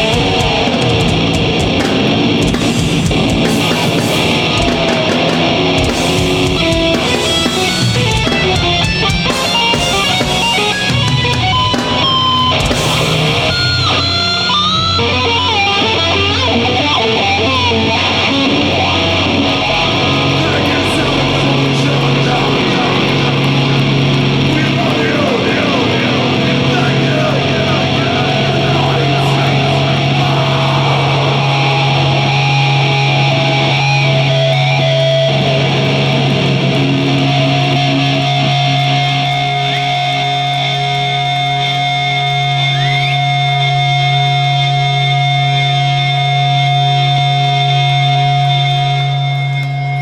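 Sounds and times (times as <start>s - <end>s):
drum hits: 0.0s - 13.7s
distorted electric guitars: 0.0s - 50.0s
heavy metal band playing: 0.0s - 50.0s.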